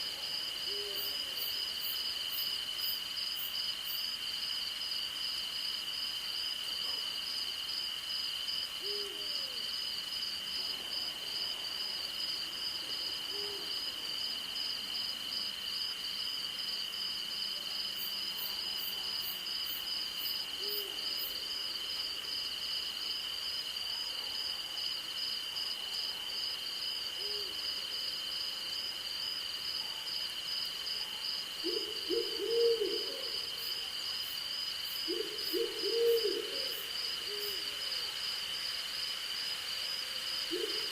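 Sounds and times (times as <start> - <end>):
night insects trilling: 0.0 - 40.9
owl hooting: 31.6 - 33.4, 35.1 - 37.7.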